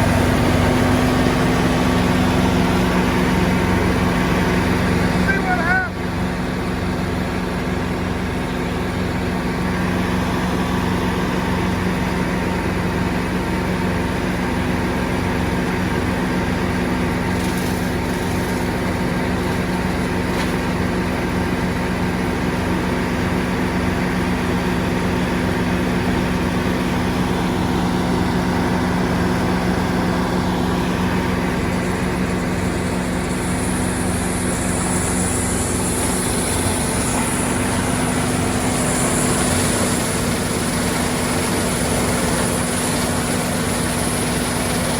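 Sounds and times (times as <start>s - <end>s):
large engine humming: 0.0s - 44.9s.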